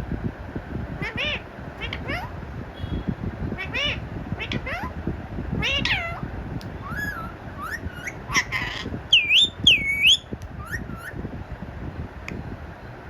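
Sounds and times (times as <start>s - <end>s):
parrot squawking: 1.0s - 2.4s, 3.6s - 5.0s, 5.6s - 11.2s
parrot whistling: 6.8s - 11.2s.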